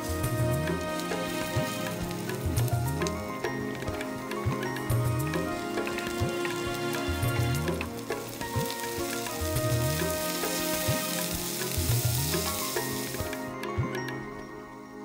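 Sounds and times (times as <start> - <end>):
background music with bass: 0.0 - 14.3
vegetables sizzling in frying pan: 6.9 - 13.4.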